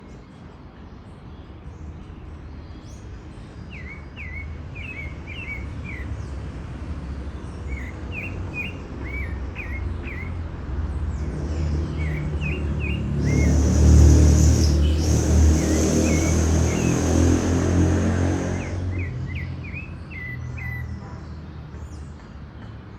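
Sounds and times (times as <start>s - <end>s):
songbird chirping: 0.0s - 17.9s.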